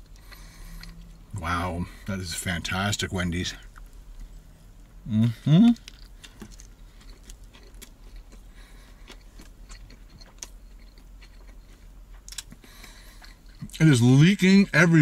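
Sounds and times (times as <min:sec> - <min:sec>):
man humming: 0:05.0 - 0:05.8
wet chewing clicks: 0:05.7 - 0:13.8.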